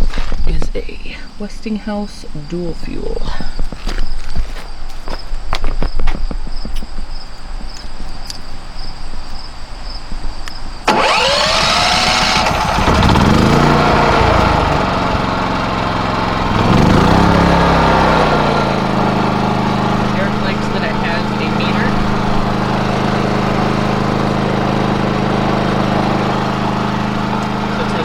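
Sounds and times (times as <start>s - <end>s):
footsteps: 3.4s - 6.9s
portable generator running: 10.8s - 28.0s.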